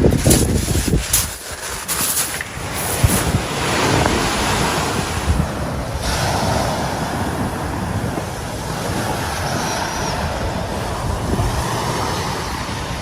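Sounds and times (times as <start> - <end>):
surf washing onto shingle: 0.0 - 9.2
wind buffeting microphone: 0.0 - 13.0.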